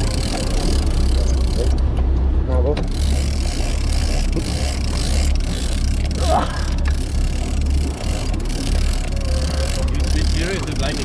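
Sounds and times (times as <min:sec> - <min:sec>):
boat engine humming: 0:00.0 - 0:11.0
water noise: 0:00.0 - 0:11.0
wind: 0:00.0 - 0:11.0.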